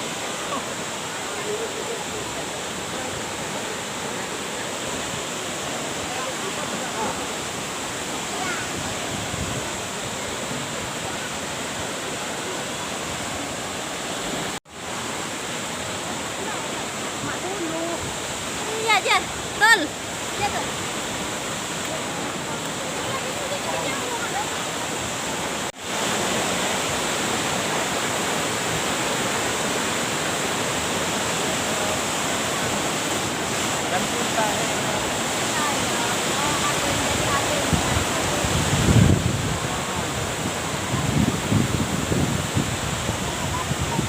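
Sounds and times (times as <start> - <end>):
waterfall rushing: 0.0 - 44.0.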